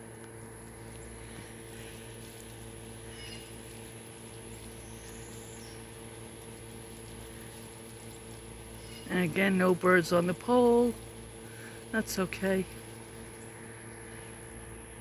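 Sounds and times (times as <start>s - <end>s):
low machine hum and hiss: 0.0s - 15.0s
faint bird chirps: 3.0s - 3.6s.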